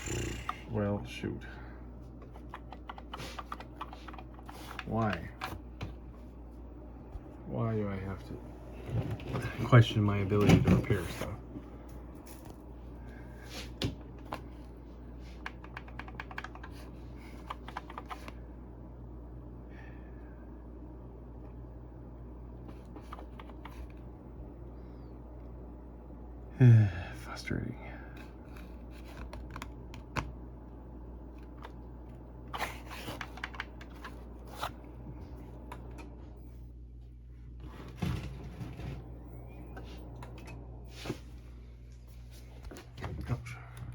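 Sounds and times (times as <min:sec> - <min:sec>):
steady low hum: 0:00.0 - 0:43.9
keyboard typing: 0:02.3 - 0:05.5, 0:15.4 - 0:18.3, 0:33.1 - 0:34.2.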